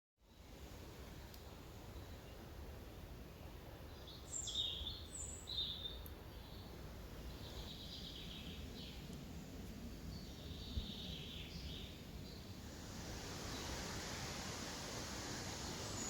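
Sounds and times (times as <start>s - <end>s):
birds singing: 1.0s - 12.6s, 15.7s - 16.0s.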